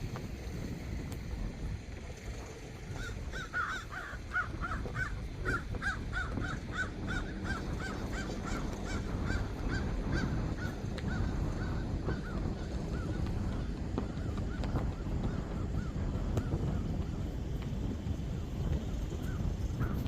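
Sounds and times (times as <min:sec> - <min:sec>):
low rumbling background: 0:00.0 - 0:20.0
bird calling rapidly: 0:03.0 - 0:14.6.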